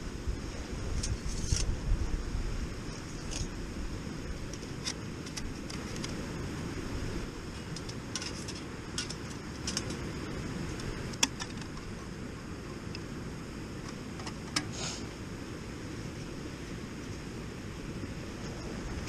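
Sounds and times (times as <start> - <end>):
wind rumbling on microphone: 0.0 - 19.0
light clicks and clinks: 7.5 - 10.1.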